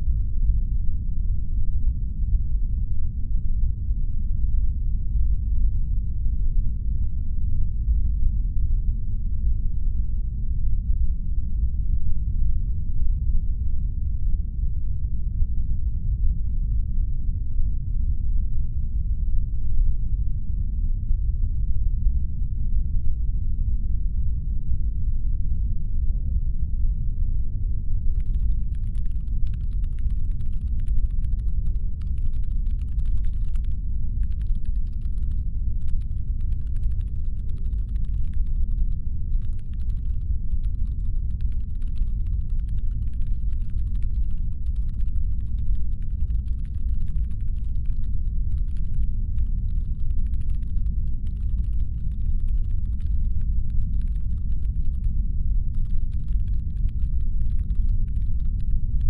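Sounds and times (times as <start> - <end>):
rapid light clicks: 28.1 - 55.1, 55.7 - 59.0
spaceship engine hum: 28.1 - 59.0.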